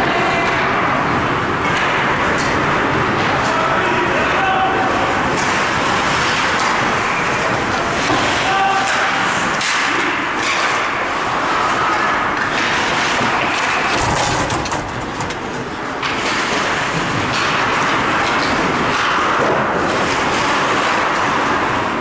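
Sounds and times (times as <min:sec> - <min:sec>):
hockey sticks and puck knocking: 0:05.3 - 0:11.0, 0:12.4 - 0:21.4.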